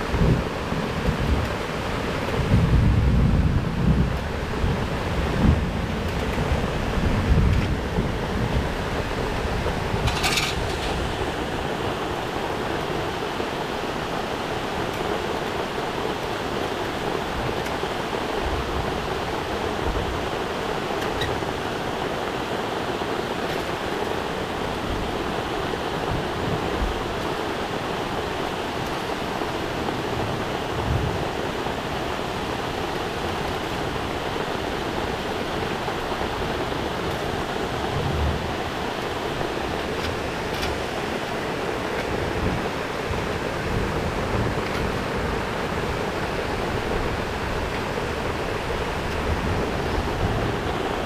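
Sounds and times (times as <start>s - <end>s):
waterfall rushing: 6.6s - 51.0s.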